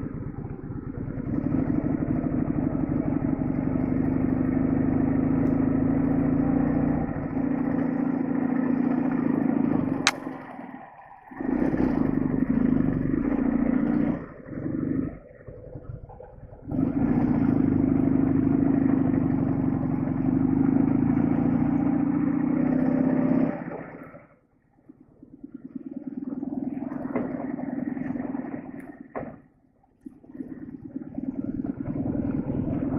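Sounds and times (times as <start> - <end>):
motorcycle engine running: 0.0 - 15.3, 16.0 - 23.9, 30.7 - 32.9
sharp click: 10.1 - 10.3.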